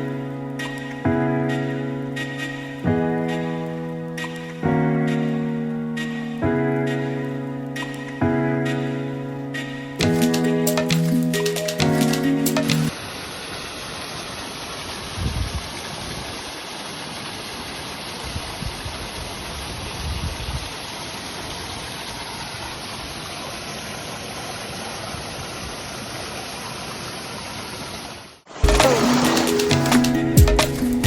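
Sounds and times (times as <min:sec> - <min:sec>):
stream water rushing: 0:12.9 - 0:31.0.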